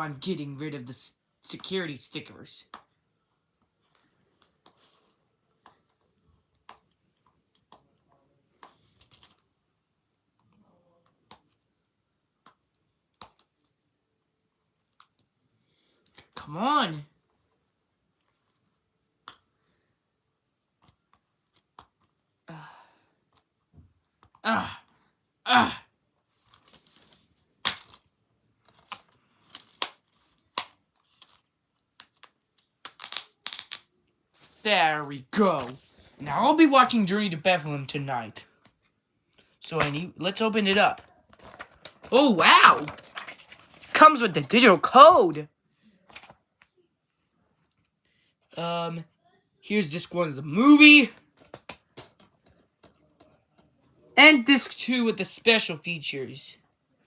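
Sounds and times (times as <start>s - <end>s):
sticker peeling clicks and crackles: 32.0s - 33.9s
faint plastic rustling: 41.0s - 44.6s, 45.8s - 48.6s.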